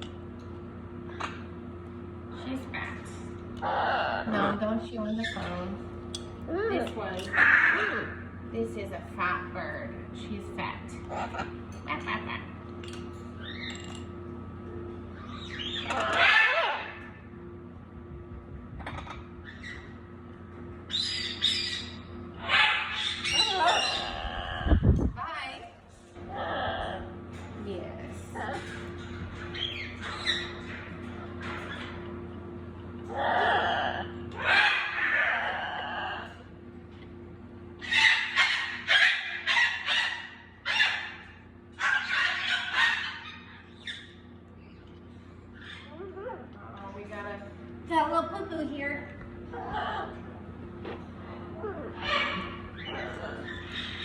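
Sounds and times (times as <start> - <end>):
baby parrots chirping and squawking: 15.2 - 17.0, 20.9 - 24.8, 29.4 - 30.8, 33.1 - 36.4, 37.8 - 44.2, 52.0 - 54.0.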